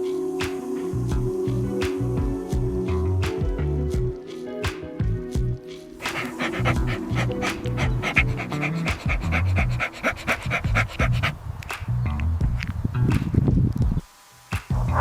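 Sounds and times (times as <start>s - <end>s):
background music: 0.0s - 12.6s
animal panting: 6.0s - 11.5s.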